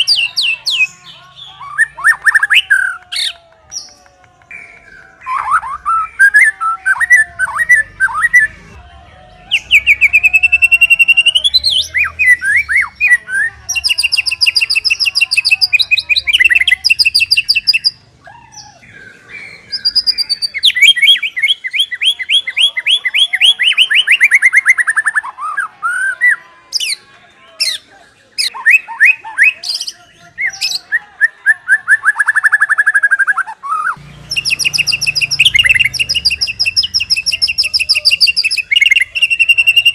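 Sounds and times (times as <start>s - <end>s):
bird singing whistles and trills: 28.5s - 39.9s.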